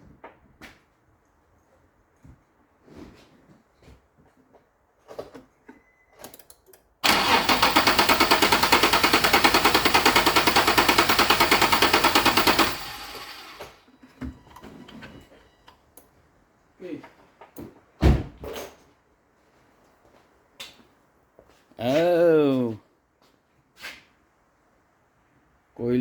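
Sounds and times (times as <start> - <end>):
engine cranked by starter: 7.0 - 13.8.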